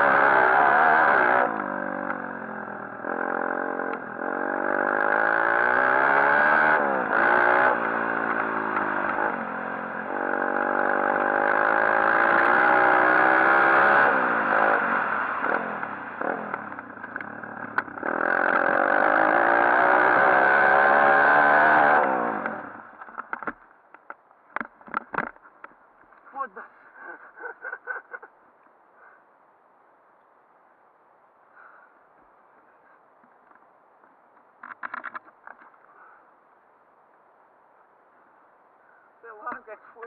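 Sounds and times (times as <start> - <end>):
motorbike engine revving: 0.0 - 23.3.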